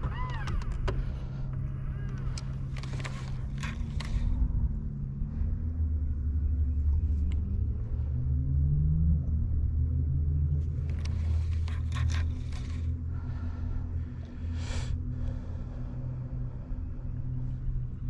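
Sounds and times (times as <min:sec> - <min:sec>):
sharp clicks: 0:02.0 - 0:04.3.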